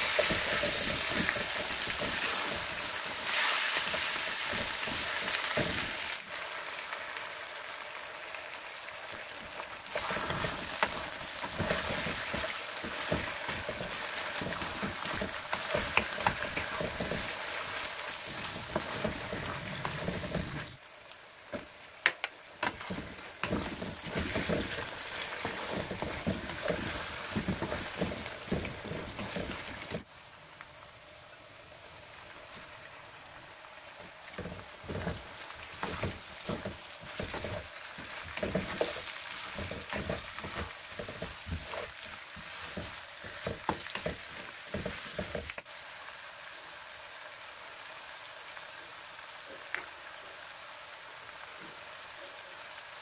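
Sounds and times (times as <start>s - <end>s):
spatula scraping wok: 0.0s - 6.2s, 9.9s - 20.8s, 22.6s - 30.0s, 34.4s - 45.6s
food sizzling in oil: 0.0s - 53.0s.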